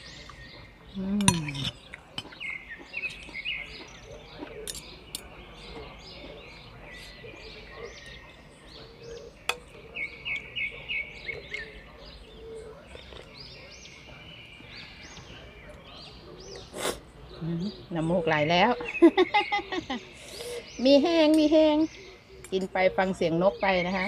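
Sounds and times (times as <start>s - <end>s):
small songbirds chirping: 0.0s - 24.0s
cutlery clinking against glass dish: 4.5s - 5.3s.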